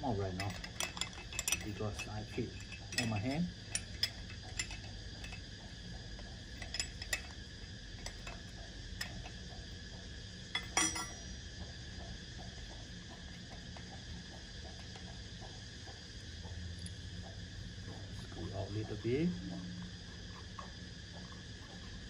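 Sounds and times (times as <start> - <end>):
steady low hum: 0.0 - 22.0
metal tools clinking: 0.4 - 5.4, 6.5 - 7.4, 10.6 - 11.3.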